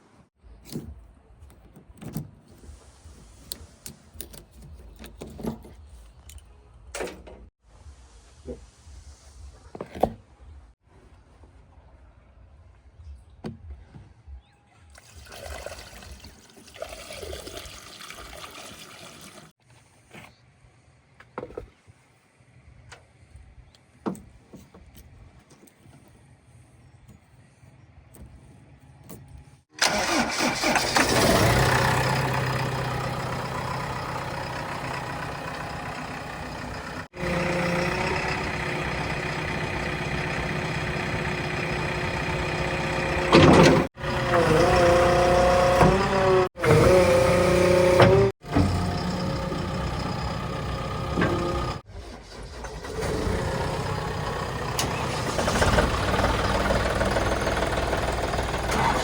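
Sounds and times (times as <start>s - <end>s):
heavy diesel engines running: 29.8s - 59.0s.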